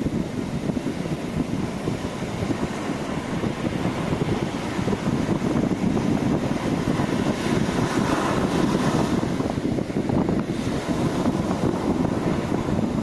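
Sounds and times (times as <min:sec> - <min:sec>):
sea waves washing: 0:00.0 - 0:13.0
wind buffeting microphone: 0:00.0 - 0:13.0.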